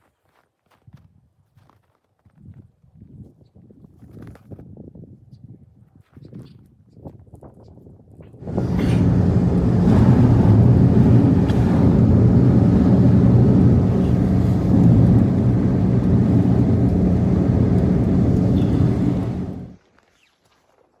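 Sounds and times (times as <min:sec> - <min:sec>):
blizzard wind buffeting microphone: 0:08.4 - 0:19.8.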